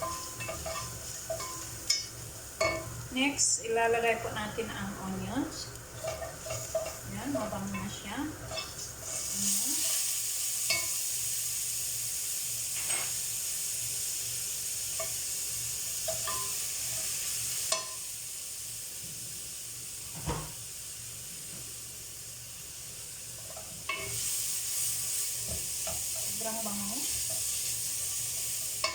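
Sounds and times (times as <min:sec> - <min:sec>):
utensil scraping a pan: 0:00.0 - 0:02.1, 0:05.9 - 0:10.9, 0:12.7 - 0:13.2
garlic and onions sizzling: 0:00.0 - 0:28.9.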